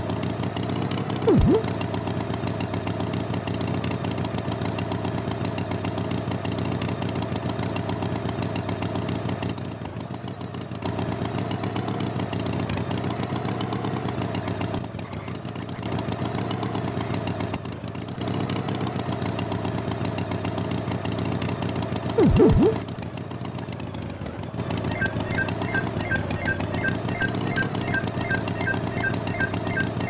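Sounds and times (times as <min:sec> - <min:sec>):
loud sound falling in pitch: 0:01.3 - 0:01.7, 0:22.2 - 0:22.8.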